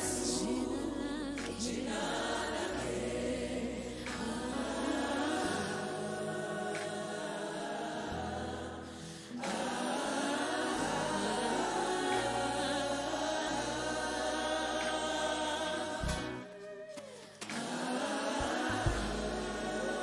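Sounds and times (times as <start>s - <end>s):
choir singing gospel song: 0.0s - 20.0s
sustained low bass notes: 18.8s - 20.0s.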